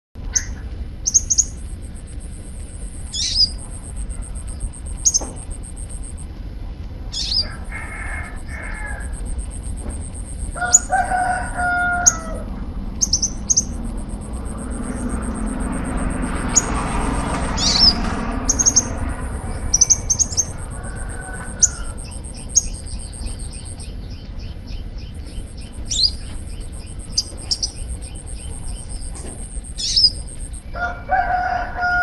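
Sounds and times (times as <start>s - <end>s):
lower drawn-out bird call: 0.3s - 6.2s, 7.1s - 24.0s
sunbird high chirps: 0.3s - 6.3s, 7.1s - 12.4s, 13.0s - 30.9s
bird buzzing trills: 0.4s - 6.3s, 7.1s - 30.8s.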